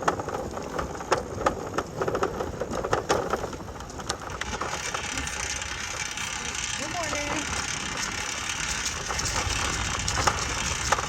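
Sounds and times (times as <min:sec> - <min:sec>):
bicycle clicking and rattling: 0:00.0 - 0:11.0.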